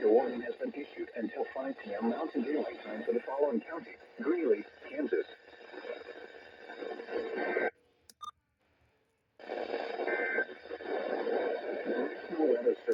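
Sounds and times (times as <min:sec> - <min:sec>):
radio static hissing: 0:00.0 - 0:07.7, 0:09.4 - 0:12.9
short clicks and beeps: 0:08.1 - 0:08.4.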